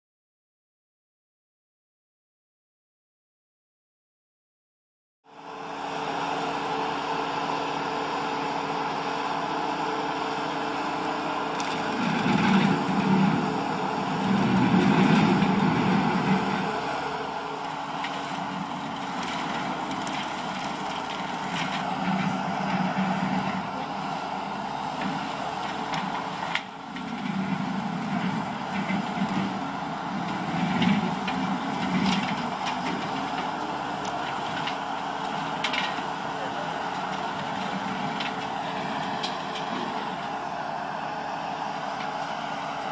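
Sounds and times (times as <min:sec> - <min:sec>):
skid steer with brush cutter: 0:05.3 - 0:42.9.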